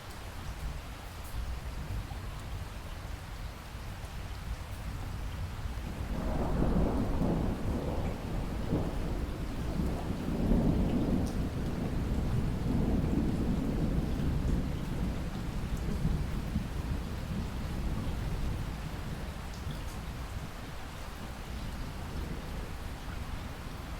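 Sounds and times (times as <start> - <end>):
rain hissing on lake: 0.0 - 23.9
rolling thunder: 5.9 - 19.4.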